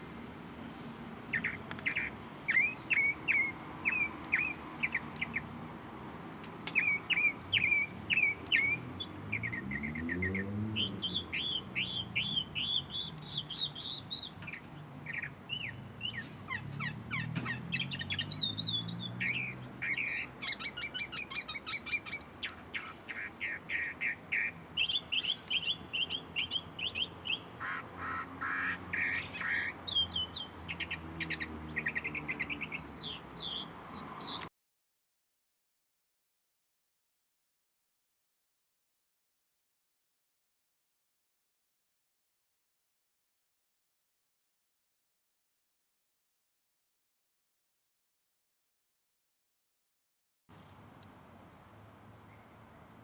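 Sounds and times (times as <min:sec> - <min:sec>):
many birds chirping: 0:00.6 - 0:05.6, 0:06.7 - 0:34.5.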